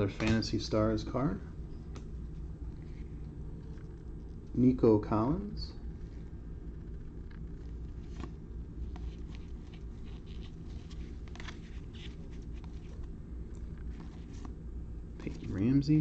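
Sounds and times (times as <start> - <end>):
steady low hum: 0.0 - 16.0
cards flicking and rustling: 7.3 - 15.7.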